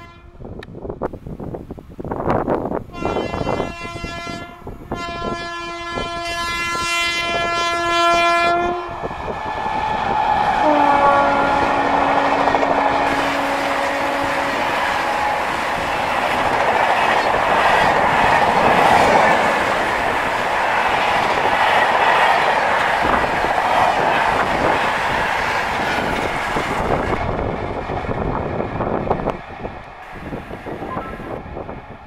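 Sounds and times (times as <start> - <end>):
locomotive horn blasts: 0.0 - 0.4, 2.9 - 9.0, 10.6 - 16.0, 30.1 - 31.4.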